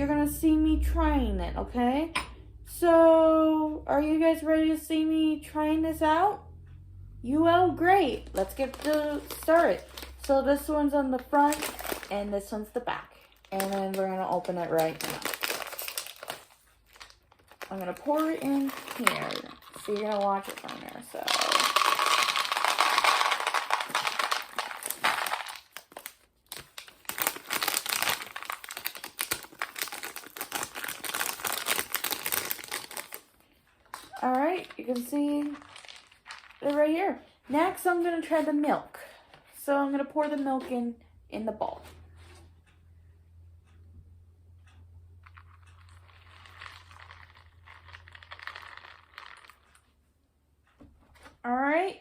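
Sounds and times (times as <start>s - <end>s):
plastic bag crinkling: 8.0s - 10.4s, 11.2s - 33.3s, 33.9s - 37.0s, 45.6s - 49.8s
cereal poured into a bowl: 18.0s - 25.8s, 35.4s - 36.7s, 45.8s - 49.8s.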